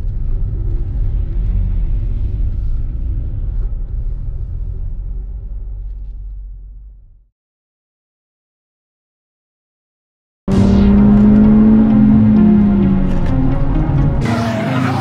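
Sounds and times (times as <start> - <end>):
car engine at low revs: 0.0 - 7.3.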